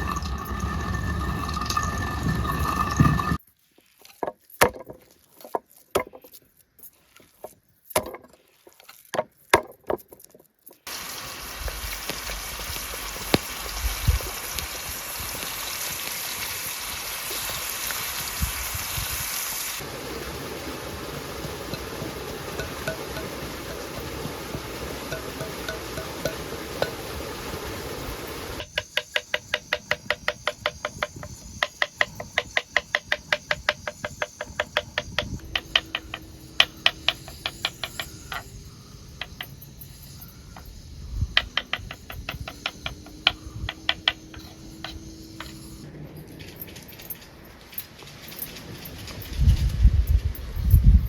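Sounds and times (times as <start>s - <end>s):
steady hiss: 0.0s - 3.4s, 10.8s - 51.0s
sharp evenly spaced taps: 28.6s - 38.5s, 39.2s - 39.6s, 41.4s - 45.0s.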